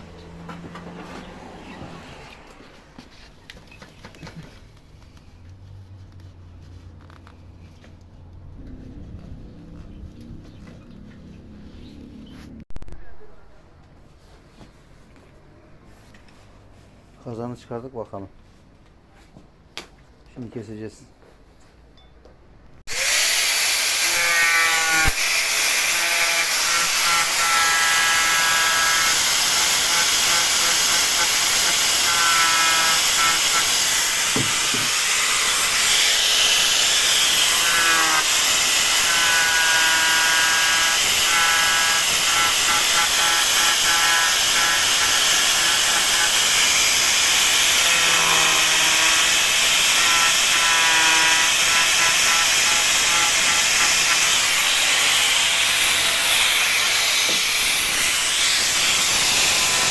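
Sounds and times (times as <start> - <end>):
angle grinder cutting plastic: 22.9 - 59.9.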